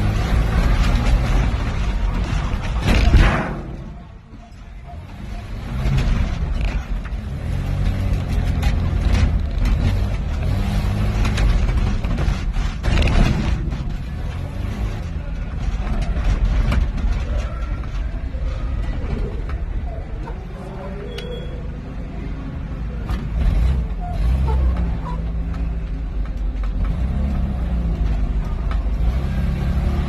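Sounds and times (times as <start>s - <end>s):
car engine running hard: 0.0s - 4.0s, 4.8s - 19.7s, 22.0s - 30.0s
sharp knocks and bangs: 0.4s - 4.1s.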